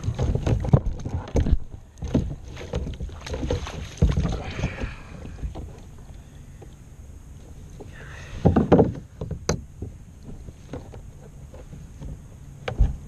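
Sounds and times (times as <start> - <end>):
knocks against a kayak: 0.0 - 5.7, 8.4 - 11.0
water splashing: 0.0 - 6.1.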